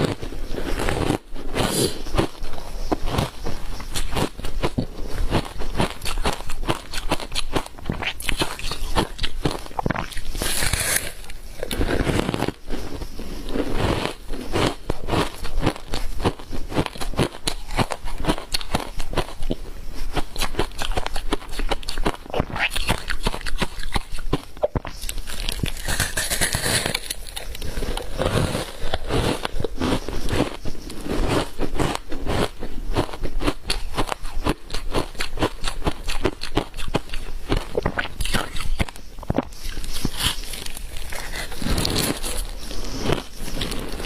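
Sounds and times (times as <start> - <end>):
person crunching ice: 0.0 - 44.0.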